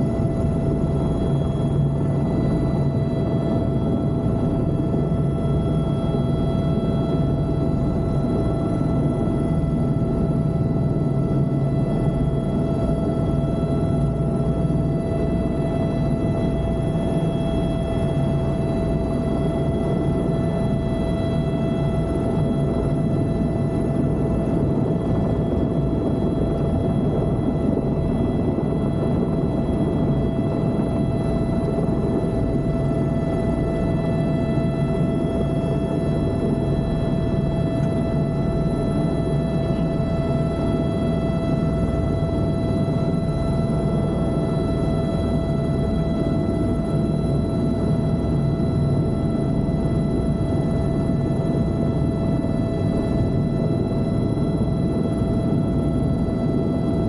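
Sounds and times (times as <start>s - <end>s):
helicopter cabin drone: 0.0s - 57.0s
high whine: 0.0s - 57.0s.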